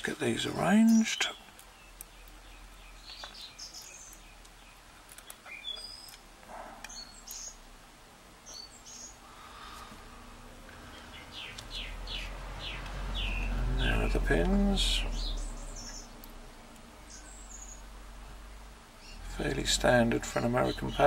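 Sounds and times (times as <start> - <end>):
faint bird chirps: 0.5 - 7.6, 8.4 - 9.9, 14.8 - 16.3.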